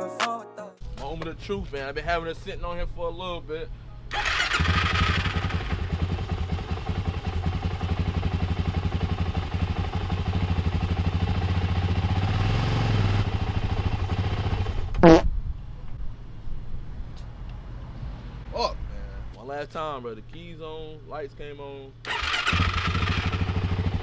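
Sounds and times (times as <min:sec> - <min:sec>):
engine cranking on starter: 0:04.1 - 0:05.7, 0:22.0 - 0:23.7.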